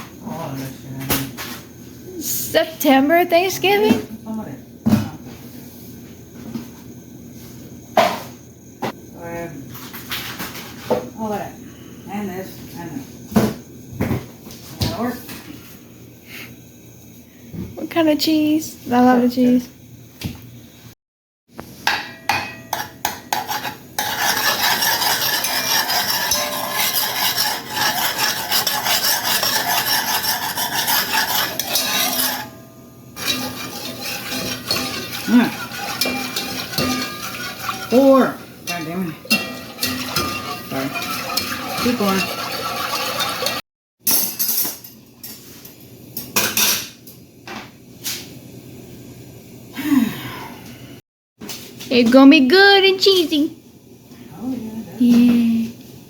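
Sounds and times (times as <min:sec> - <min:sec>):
spoon scraping in a dish: 0:22.6 - 0:32.6, 0:33.2 - 0:43.6.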